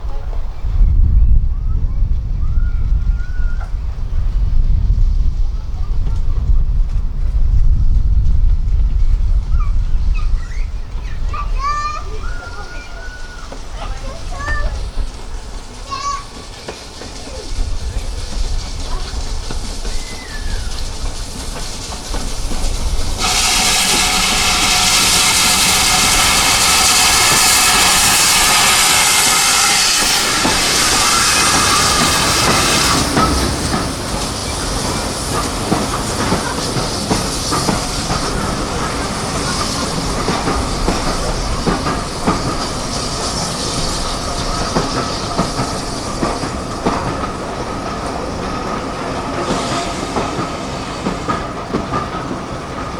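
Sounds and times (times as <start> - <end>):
train wheels clickety-clack: 0.0 - 52.9
loud hiss with steady tones: 10.3 - 52.9.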